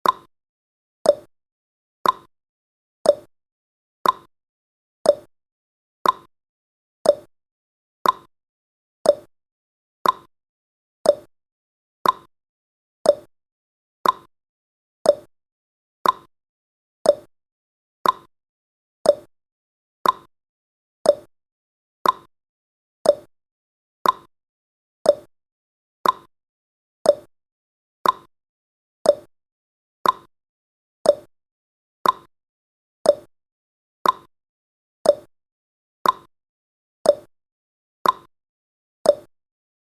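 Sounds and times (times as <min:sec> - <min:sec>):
timer ticking: 0:00.0 - 0:00.3, 0:01.0 - 0:01.3, 0:02.0 - 0:02.3, 0:03.0 - 0:03.3, 0:04.0 - 0:04.3, 0:05.1 - 0:05.3, 0:06.0 - 0:06.3, 0:07.0 - 0:07.3, 0:08.0 - 0:08.3, 0:09.0 - 0:09.3, 0:10.0 - 0:10.3, 0:11.0 - 0:11.3, 0:12.0 - 0:12.3, 0:13.0 - 0:13.3, 0:14.0 - 0:14.3, 0:15.0 - 0:15.3, 0:16.0 - 0:16.3, 0:17.0 - 0:17.3, 0:18.0 - 0:18.3, 0:19.0 - 0:19.3, 0:20.0 - 0:20.3, 0:21.0 - 0:21.3, 0:22.0 - 0:22.3, 0:23.0 - 0:23.3, 0:24.0 - 0:24.3, 0:25.0 - 0:25.3, 0:26.0 - 0:26.3, 0:27.0 - 0:27.3, 0:28.0 - 0:28.3, 0:29.0 - 0:29.3, 0:30.0 - 0:30.3, 0:31.0 - 0:31.3, 0:32.0 - 0:32.3, 0:33.0 - 0:33.3, 0:34.0 - 0:34.3, 0:35.0 - 0:35.3, 0:36.0 - 0:36.3, 0:37.1 - 0:37.3, 0:38.0 - 0:38.3, 0:39.1 - 0:39.3.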